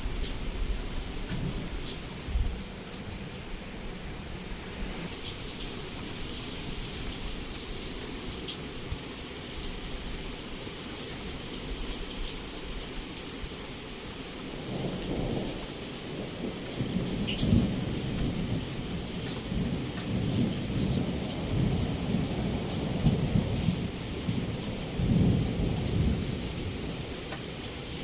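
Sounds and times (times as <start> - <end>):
low rolling thunder: 0.0 - 5.1, 14.4 - 27.3
heavy rain against a window: 0.0 - 28.0.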